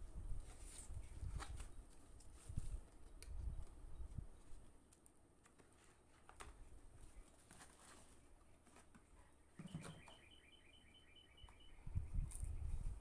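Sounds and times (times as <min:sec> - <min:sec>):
bird chirping: 0:09.6 - 0:13.0.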